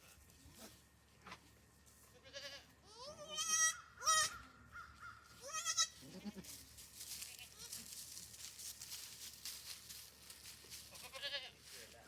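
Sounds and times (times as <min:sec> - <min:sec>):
goats bleating: 0:02.1 - 0:04.4, 0:05.4 - 0:06.6, 0:07.2 - 0:07.9, 0:10.9 - 0:11.6.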